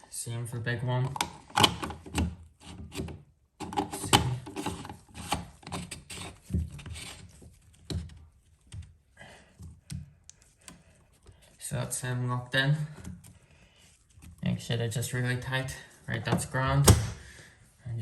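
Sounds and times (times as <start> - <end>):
plastic filter knocking and scraping: 1.0 - 10.1.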